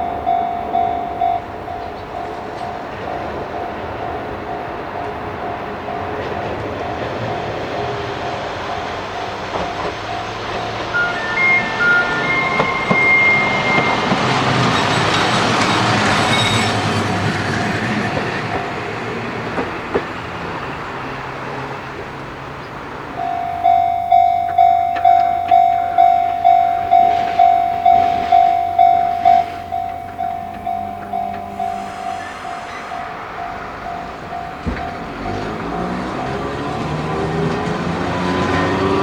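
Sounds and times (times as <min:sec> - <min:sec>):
crossing warning bell ringing: 0:00.0 - 0:39.0
train passing: 0:00.0 - 0:39.0.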